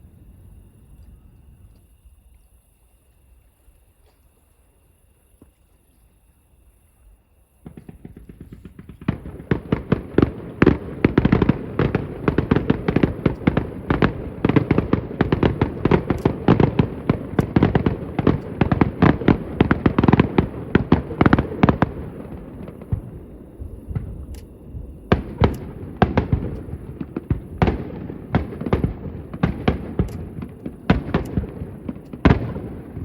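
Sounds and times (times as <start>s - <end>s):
fireworks bangs: 7.6s - 33.0s.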